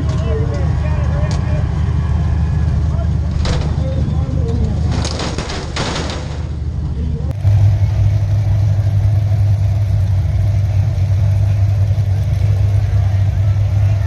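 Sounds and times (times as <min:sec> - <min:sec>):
race car engine running: 0:06.4 - 0:14.0.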